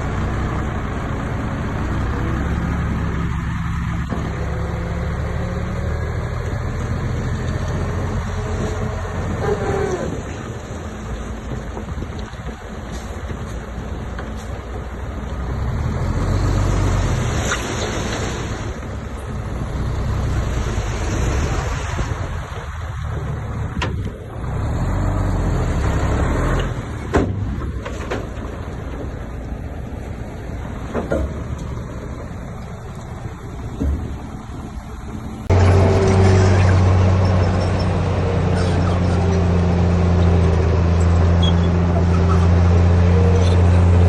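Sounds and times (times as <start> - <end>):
bulldozer diesel engine: 0.0 - 44.0
metal knocks and clanks: 30.8 - 31.8.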